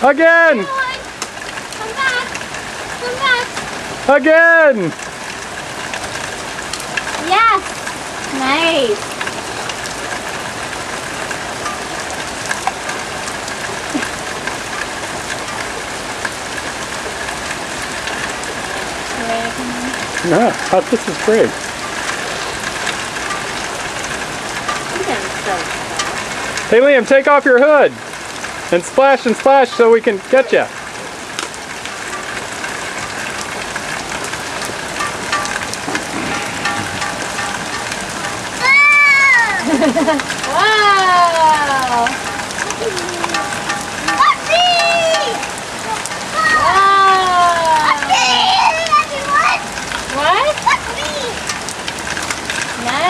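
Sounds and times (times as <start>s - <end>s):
raindrop ticks: 0.0s - 53.0s
steady rain falling: 0.0s - 53.0s.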